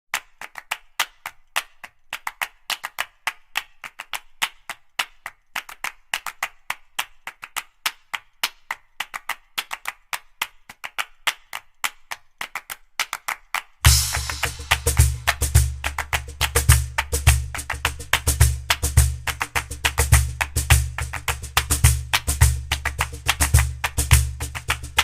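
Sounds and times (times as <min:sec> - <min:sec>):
dry percussive clacks: 0:13.8 - 0:25.0.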